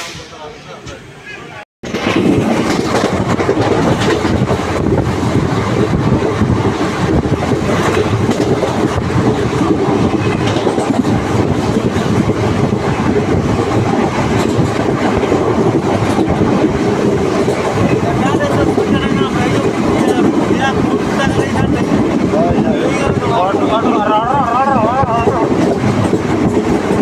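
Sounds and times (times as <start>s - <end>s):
passenger train rumbling: 0.0s - 27.0s
wheels clattering over rail joints: 1.8s - 23.8s.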